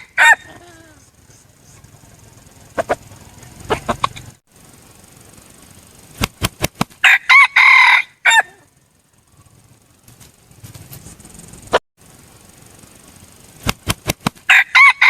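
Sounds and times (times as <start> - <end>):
rooster crowing: 0.0 - 1.0, 7.0 - 8.8, 14.5 - 15.0.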